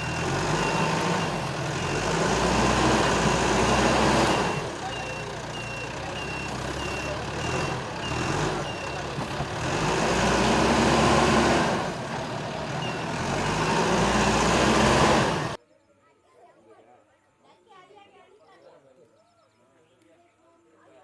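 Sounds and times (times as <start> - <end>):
heavy vehicle engine revving: 0.0 - 15.6
reversing alarm beeping: 0.0 - 15.6.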